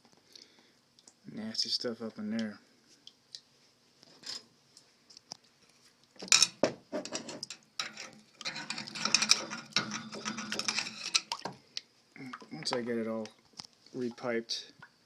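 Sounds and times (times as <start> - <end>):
metal tools clinking and scraping: 4.2 - 4.5, 6.2 - 11.3.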